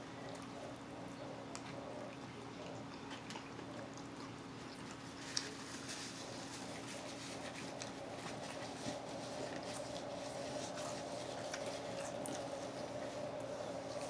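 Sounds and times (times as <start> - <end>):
faint steady hum: 0.0 - 14.0
man chewing: 1.5 - 14.0
rustle in pizza box: 5.0 - 13.3.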